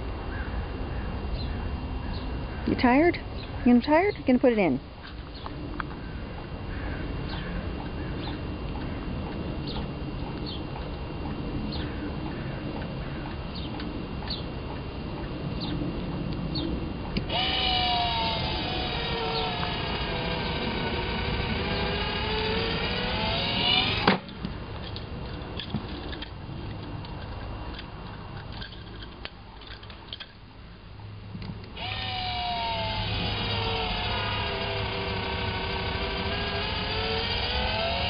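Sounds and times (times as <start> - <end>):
electric motor whirring: 6.8 - 25.1, 31.7 - 38.0.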